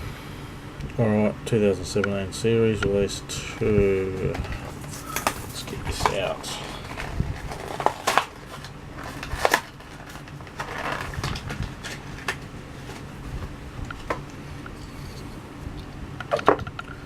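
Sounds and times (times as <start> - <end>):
plastic packaging crackling: 4.3 - 14.8.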